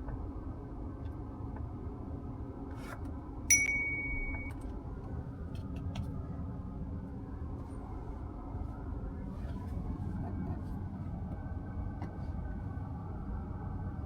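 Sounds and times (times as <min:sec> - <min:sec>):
electronic chime: 0:03.5 - 0:04.6
low car cabin rumble: 0:04.3 - 0:14.0.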